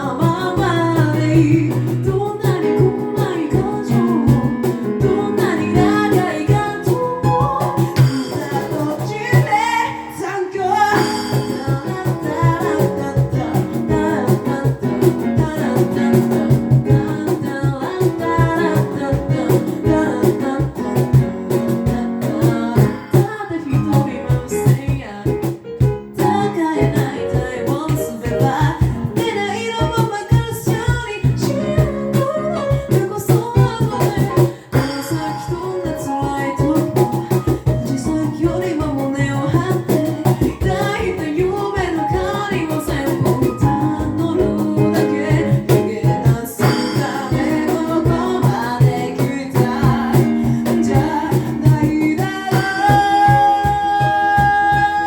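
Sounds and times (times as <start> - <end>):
vocal percussion beat: 0.0 - 55.0
sung bass line: 25.9 - 55.0
group singing in harmony: 40.2 - 53.3.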